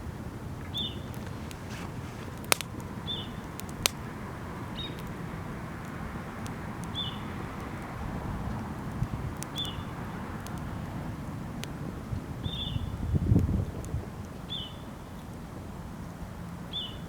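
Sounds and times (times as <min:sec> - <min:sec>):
campfire crackling and popping: 0:00.0 - 0:16.7
bird chirping: 0:00.7 - 0:01.2, 0:03.0 - 0:03.5, 0:04.8 - 0:05.0, 0:06.9 - 0:07.3, 0:09.5 - 0:09.9, 0:12.4 - 0:13.0, 0:14.4 - 0:15.1, 0:16.7 - 0:17.0.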